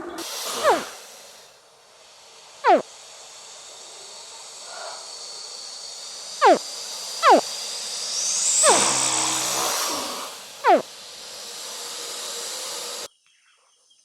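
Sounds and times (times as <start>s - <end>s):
steady hiss: 0.0s - 13.1s
crocodile chirps: 0.6s - 0.9s, 2.6s - 2.9s, 6.4s - 7.6s, 8.6s - 9.8s, 10.6s - 10.9s.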